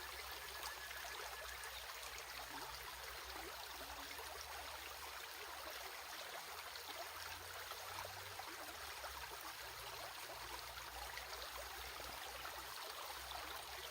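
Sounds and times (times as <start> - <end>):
stream flowing: 0.0 - 13.9.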